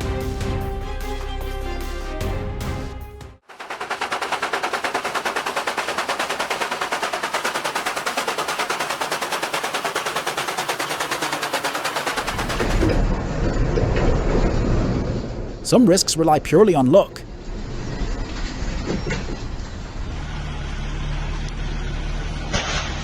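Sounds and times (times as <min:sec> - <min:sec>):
music: 0:00.0 - 0:03.4
rapid sharp clicks: 0:03.5 - 0:13.0
low rumble: 0:12.3 - 0:15.7.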